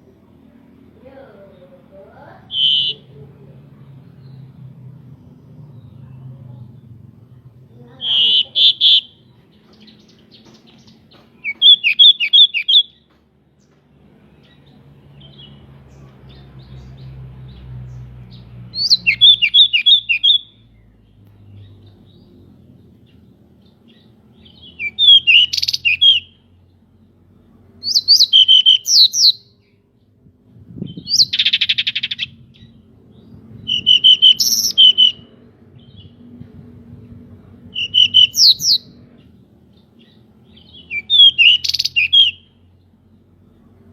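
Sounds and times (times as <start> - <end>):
harsh buzzy bird phrase: 2.3 - 3.2, 7.8 - 9.2
bird singing whistled notes: 2.5 - 3.1, 8.0 - 13.1, 18.7 - 20.7, 23.9 - 26.4, 27.8 - 29.7, 30.8 - 36.2, 37.7 - 39.0, 39.8 - 42.6.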